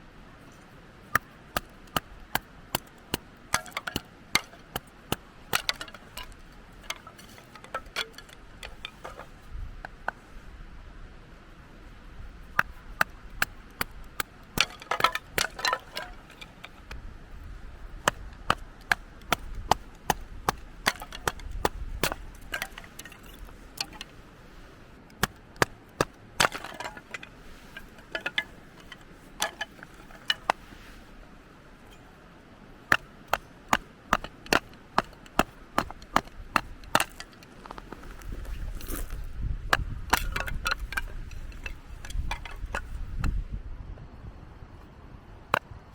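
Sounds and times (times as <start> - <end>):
firewood splitting knocks: 1.1 - 9.4, 12.6 - 17.0, 18.0 - 24.1, 25.2 - 30.6, 32.9 - 43.4.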